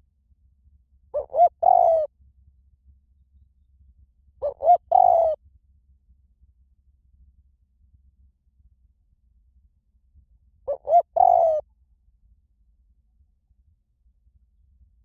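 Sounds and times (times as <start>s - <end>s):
dove cooing: 1.2s - 2.1s, 4.4s - 5.4s, 10.7s - 11.6s.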